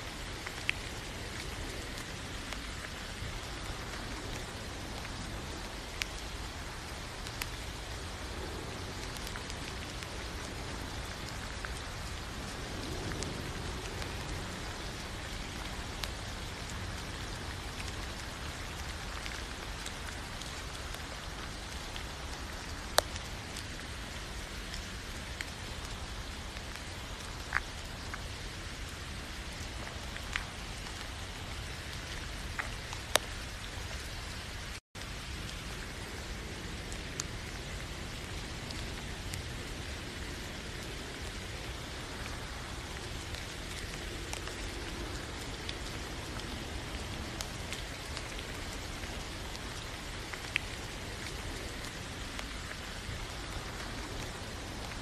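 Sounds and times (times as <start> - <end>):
louder raindrop ticking: 0.0 - 55.0
steady rainfall: 0.0 - 55.0.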